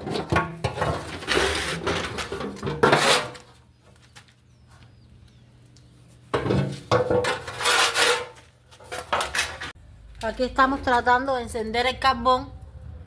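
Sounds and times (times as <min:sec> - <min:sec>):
metal trays clattering: 0:00.0 - 0:03.5, 0:06.4 - 0:09.8.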